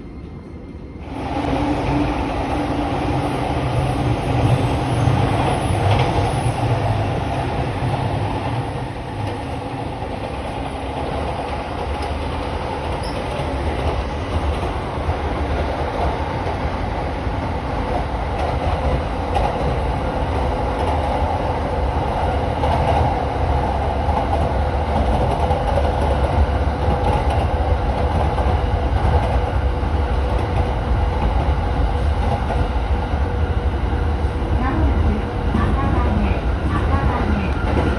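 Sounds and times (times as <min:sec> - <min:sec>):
train wheels rumbling: 0:00.0 - 0:37.9
clickety-clack over rail joints: 0:09.2 - 0:33.3, 0:34.2 - 0:37.9.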